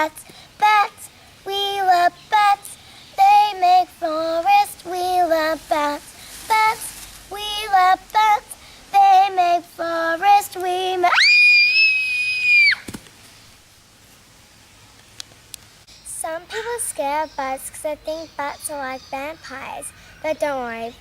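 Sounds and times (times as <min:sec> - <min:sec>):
child singing: 0:00.0 - 0:11.3, 0:16.1 - 0:21.0
child's shrill high cry: 0:11.1 - 0:12.9.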